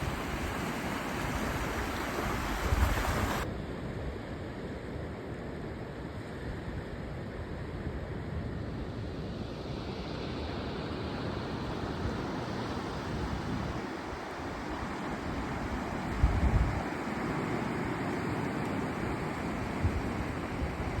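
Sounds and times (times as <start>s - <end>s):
ocean surf washing on beach: 0.0s - 3.5s, 9.6s - 21.0s
wind buffeting microphone: 0.0s - 3.5s, 13.1s - 21.0s.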